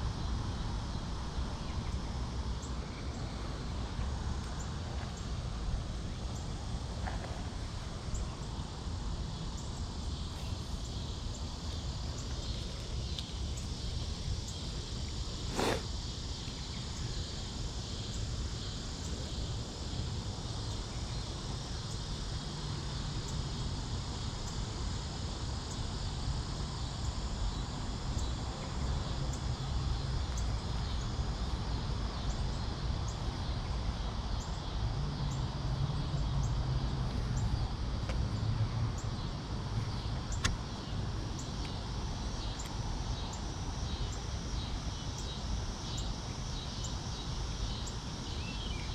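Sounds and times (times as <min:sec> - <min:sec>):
high hiss: 0:02.5 - 0:33.5.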